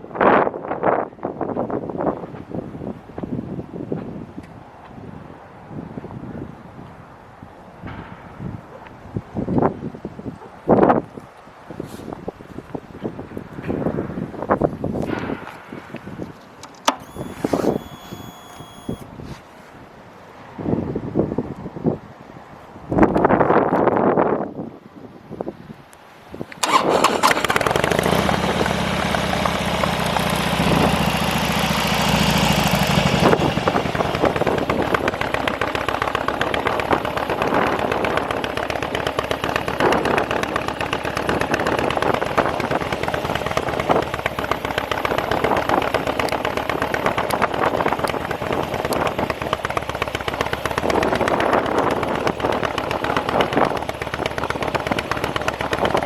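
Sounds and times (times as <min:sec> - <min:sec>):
motorcycle engine starting and idling: 0:16.6 - 0:19.1, 0:26.5 - 0:56.0.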